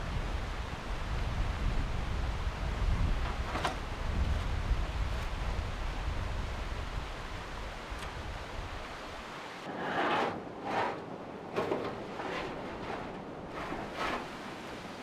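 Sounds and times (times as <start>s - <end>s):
wind rumbling on microphone: 0.0s - 15.0s
rustling noise: 3.0s - 6.2s, 7.9s - 15.0s.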